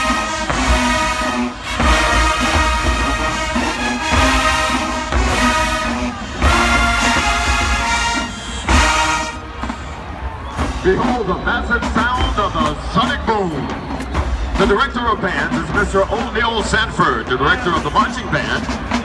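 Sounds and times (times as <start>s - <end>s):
brass section playing chords: 0.0s - 9.8s.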